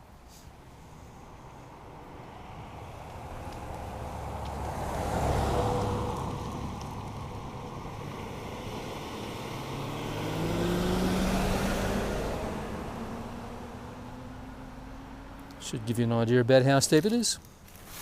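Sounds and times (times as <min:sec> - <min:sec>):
car driving past: 0:01.8 - 0:15.8
vehicle accelerating past: 0:02.6 - 0:15.7.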